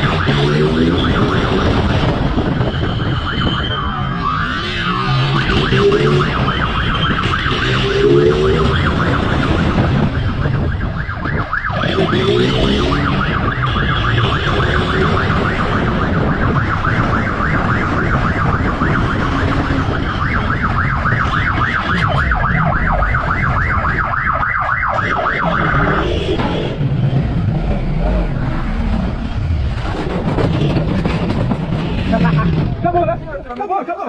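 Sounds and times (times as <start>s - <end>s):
police siren yelping: 0.0s - 26.8s
wind and engine rumble: 0.0s - 33.6s.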